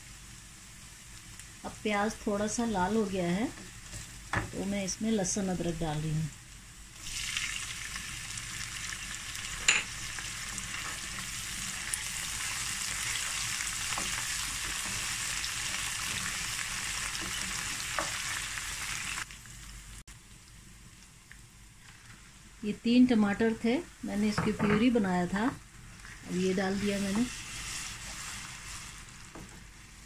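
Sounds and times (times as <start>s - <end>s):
onions sizzling in hot oil: 0.0s - 30.0s
wooden spatula stirring: 26.0s - 29.7s.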